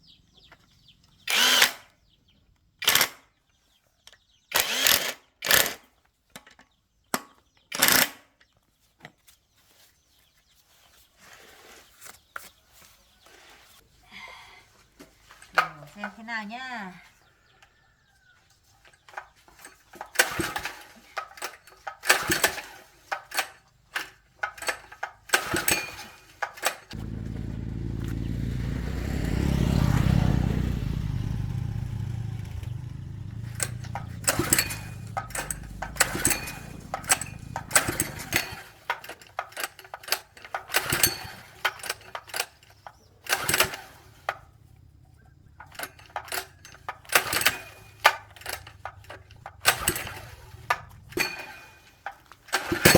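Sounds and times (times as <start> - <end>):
tools clicking and knocking: 18.9 - 27.0, 33.3 - 44.4, 45.6 - 52.9
electric motor humming: 27.0 - 38.4.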